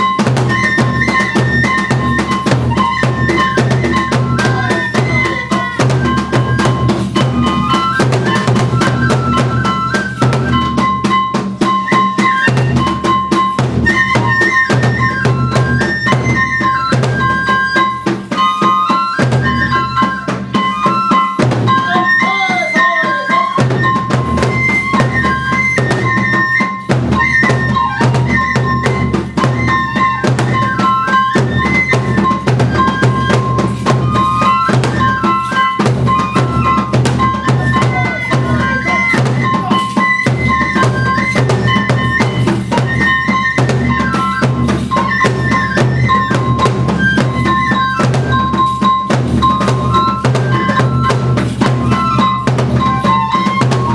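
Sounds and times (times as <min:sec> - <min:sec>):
taiko drum beating: 0:00.0 - 0:22.1, 0:23.6 - 0:53.9
high bamboo flute melody: 0:00.0 - 0:53.9.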